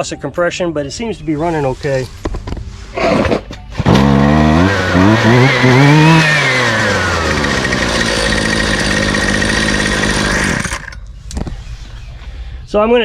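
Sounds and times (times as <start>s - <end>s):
string trimmer engine revving: 3.7s - 11.0s.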